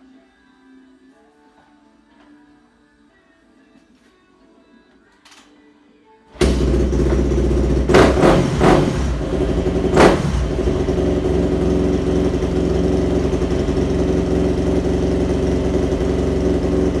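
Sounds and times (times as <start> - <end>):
motorcycle engine idling: 6.4 - 17.0.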